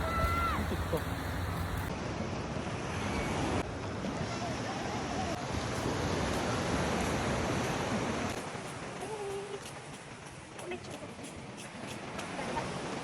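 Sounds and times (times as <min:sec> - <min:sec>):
ocean surf rushing: 0:00.0 - 0:09.1.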